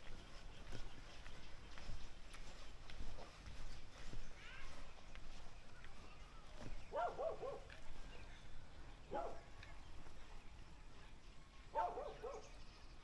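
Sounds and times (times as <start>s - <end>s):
dog barking: 6.9s - 7.7s, 9.1s - 9.5s, 11.7s - 12.5s.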